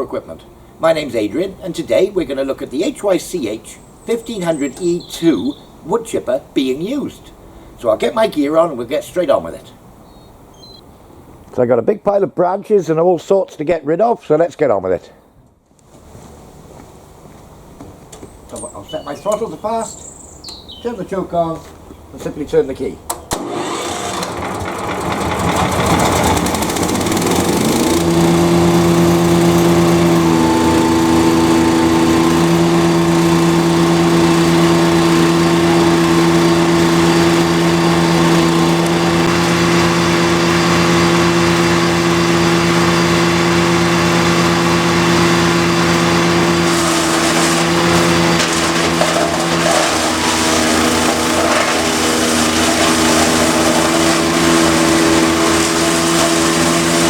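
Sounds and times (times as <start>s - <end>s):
wood chipper engine running: 3.2s - 5.8s, 23.2s - 57.0s.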